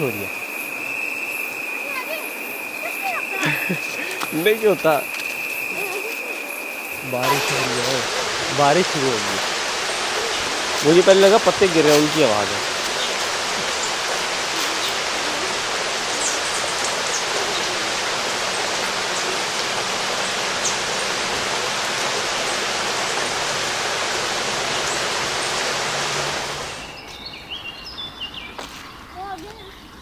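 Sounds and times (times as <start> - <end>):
rain on tree leaves: 0.0 - 29.6
faint bird chirps: 26.7 - 30.0.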